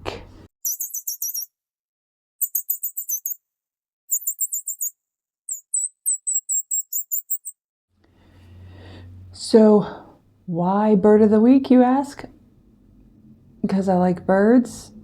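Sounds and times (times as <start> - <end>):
small bird chirping trills: 0.6 - 1.5, 2.4 - 3.4, 4.1 - 7.6.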